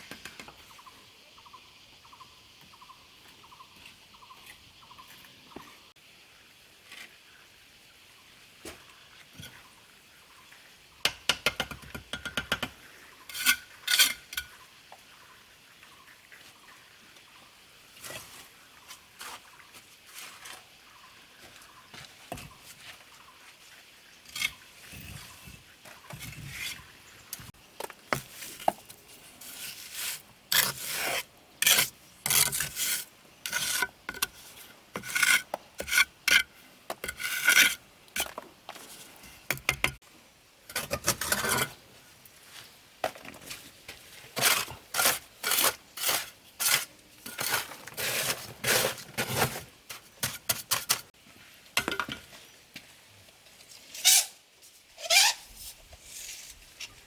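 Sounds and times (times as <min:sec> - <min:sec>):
scraping strokes on brick: 0:13.3 - 0:14.5, 0:28.1 - 0:40.0, 0:44.4 - 0:51.1.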